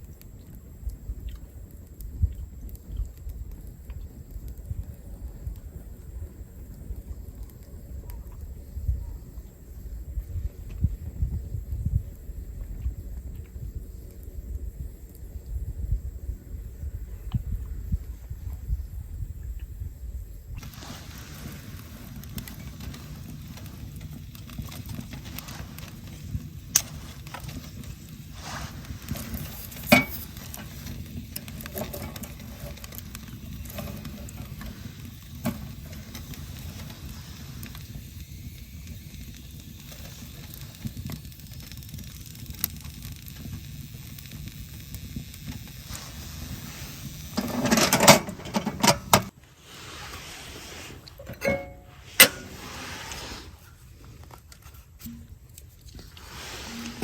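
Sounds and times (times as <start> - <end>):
campfire crackling: 0.0 - 18.2, 20.1 - 57.0
loud pops from fire: 20.6 - 49.4.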